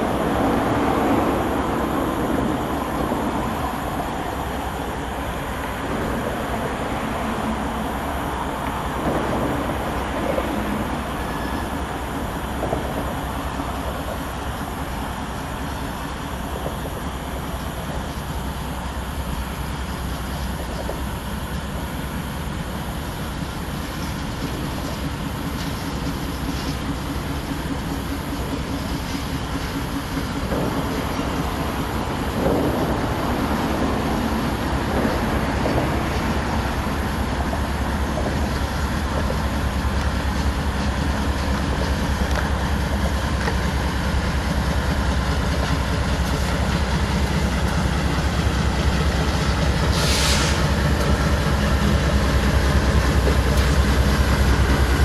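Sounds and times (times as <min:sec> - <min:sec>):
freight train rumbling on rails: 0:00.0 - 0:55.0
short hiss: 0:49.8 - 0:51.2.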